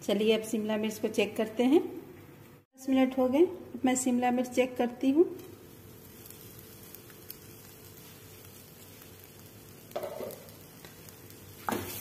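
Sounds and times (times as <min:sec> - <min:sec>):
vegetables sizzling in oil: 0:04.0 - 0:12.0.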